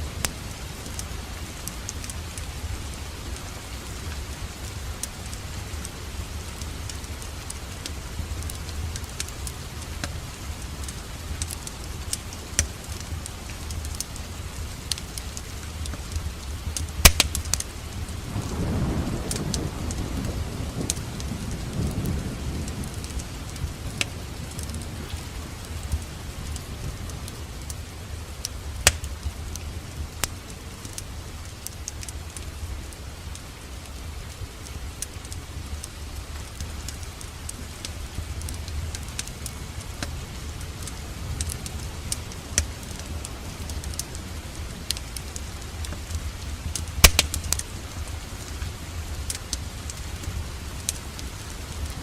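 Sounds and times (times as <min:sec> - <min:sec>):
crackling wood fire: 0:00.0 - 0:52.0
steady rain: 0:00.0 - 0:52.0.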